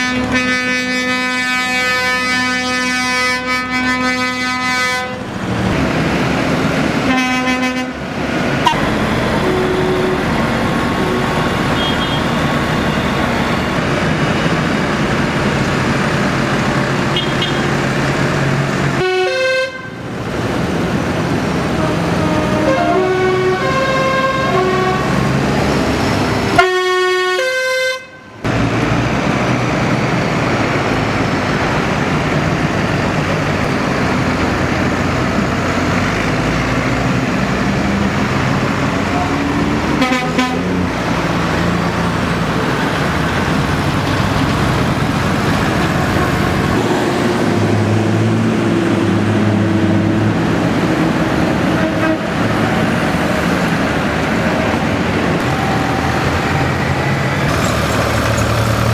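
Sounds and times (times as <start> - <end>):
horns tooting: 0.0 - 5.3, 7.0 - 13.9, 17.1 - 17.8, 18.9 - 20.1, 21.7 - 25.4, 26.5 - 28.4, 39.0 - 40.9, 51.4 - 52.8
tractor engines running: 0.0 - 19.0, 19.8 - 26.6, 28.4 - 58.9.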